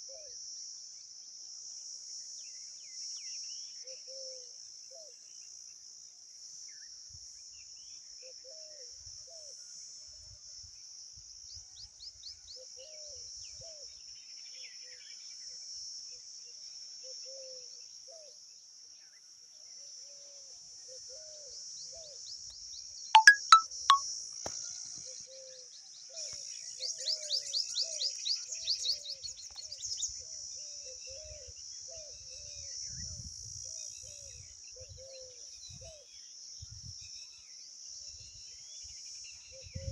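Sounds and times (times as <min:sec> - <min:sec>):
fast high chirps: 0:23.2 - 0:24.0.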